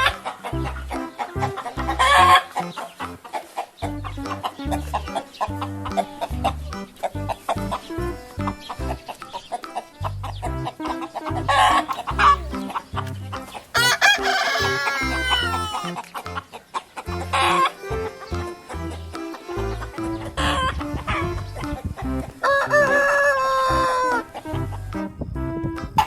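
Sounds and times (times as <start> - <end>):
music with repeating bass line: 0.0 - 3.2, 3.8 - 26.0
chicken calls: 0.0 - 25.0
rooster crowing: 13.6 - 16.0, 22.4 - 24.3.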